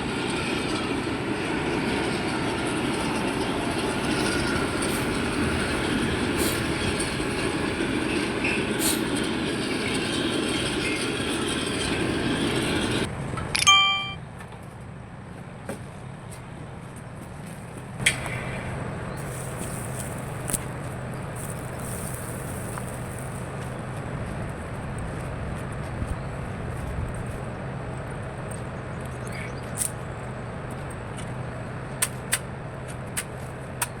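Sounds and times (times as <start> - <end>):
low machine hum: 2.7 - 13.1, 17.2 - 34.0.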